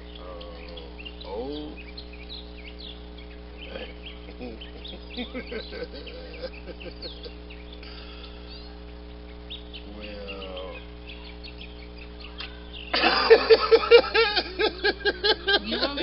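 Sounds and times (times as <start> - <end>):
faint steady hum: 0.0 - 16.0
small birds chirping: 0.0 - 16.0
loud person's voice: 15.6 - 16.0.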